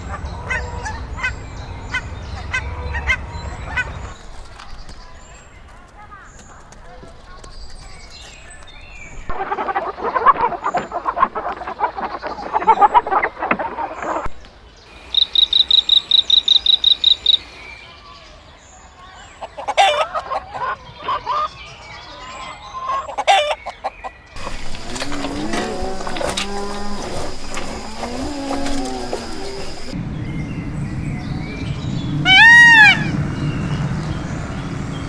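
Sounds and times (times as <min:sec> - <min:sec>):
chickens clucking and calling: 0:00.0 - 0:04.2, 0:09.3 - 0:14.3, 0:14.9 - 0:17.7, 0:19.3 - 0:30.0, 0:31.2 - 0:35.0
high chirps: 0:14.9 - 0:17.8, 0:24.4 - 0:35.0.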